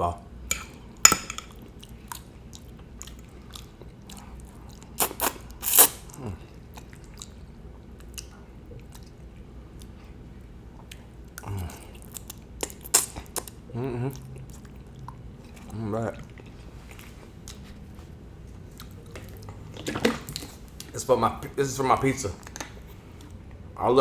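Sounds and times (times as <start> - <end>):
person chewing: 1.4 - 10.2, 10.8 - 21.0.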